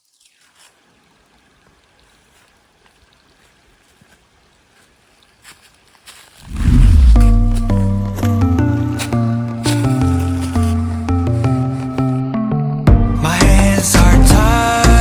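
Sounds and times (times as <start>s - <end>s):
faint steady hiss: 0.0s - 6.5s
music: 6.7s - 15.0s.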